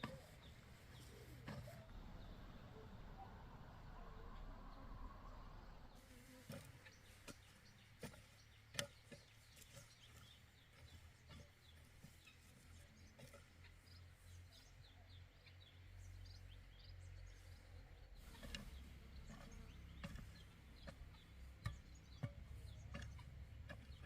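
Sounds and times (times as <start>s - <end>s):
low steady rumble: 0.0s - 7.2s.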